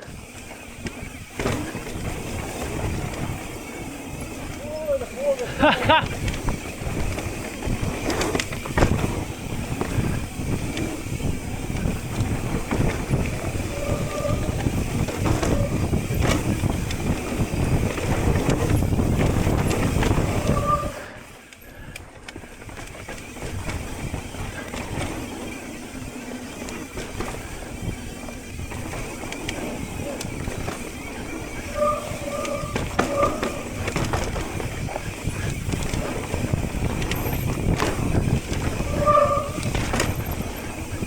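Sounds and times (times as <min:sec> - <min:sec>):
bike rattling and knocking: 0:00.0 - 0:41.0
bike tyres rumbling on dirt: 0:00.0 - 0:41.0
disc brakes honking: 0:07.9 - 0:18.9, 0:26.4 - 0:41.0.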